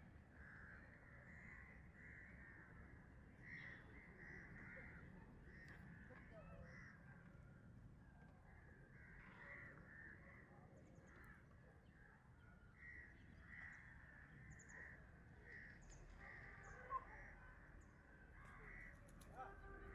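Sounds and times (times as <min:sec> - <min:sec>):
faint bird calls: 0:08.4 - 0:19.9.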